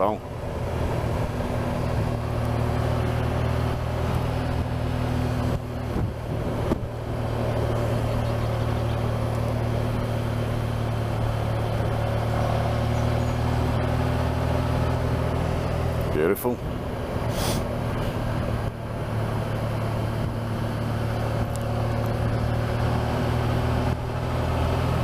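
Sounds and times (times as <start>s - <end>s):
motorcycle engine cruising: 0.0s - 25.0s
wind rush over microphone: 5.8s - 7.1s.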